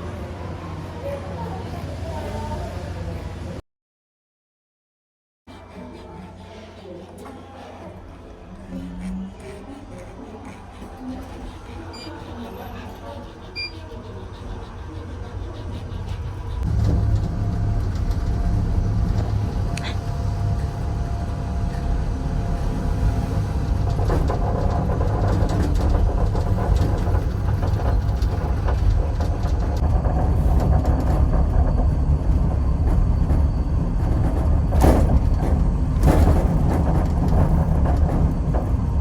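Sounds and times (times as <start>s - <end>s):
vehicle rumbling: 10.8s - 39.0s.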